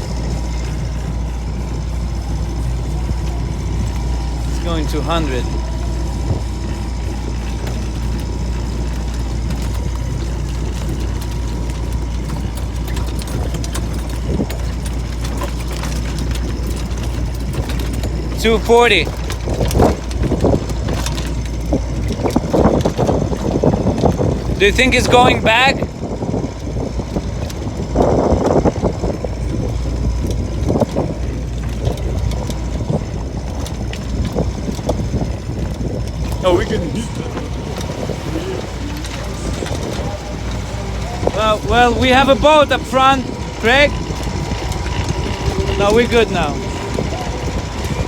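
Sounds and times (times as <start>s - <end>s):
boat engine rumble: 0.0s - 48.0s.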